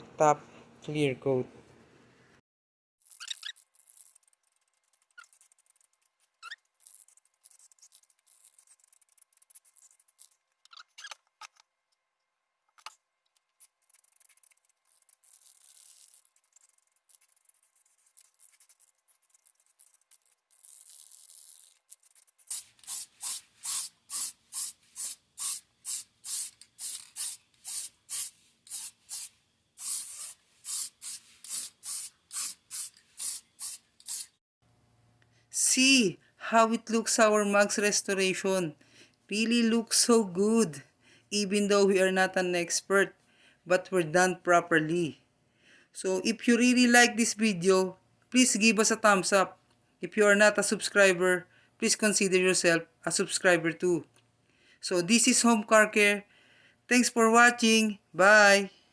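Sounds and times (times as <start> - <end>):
spray can hissing: 13.9 - 17.2, 19.8 - 34.4.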